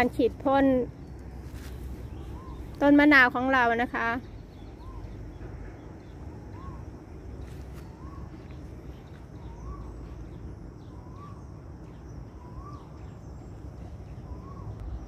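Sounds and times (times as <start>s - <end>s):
low steady rumble: 0.0s - 15.0s
high bird chirps: 1.9s - 6.9s
bird whistling call: 2.1s - 2.8s, 6.5s - 6.8s, 7.8s - 8.4s, 10.8s - 11.5s, 12.3s - 13.1s, 14.2s - 14.8s.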